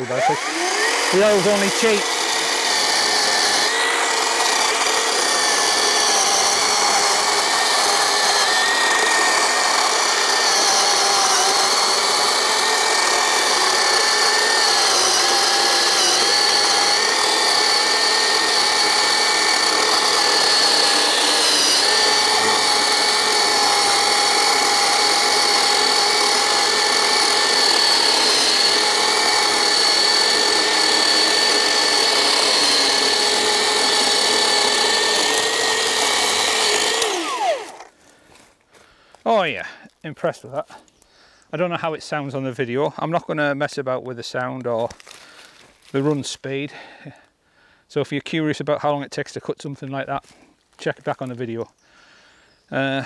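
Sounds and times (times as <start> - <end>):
electric chainsaw cutting wood: 0.0 - 38.0.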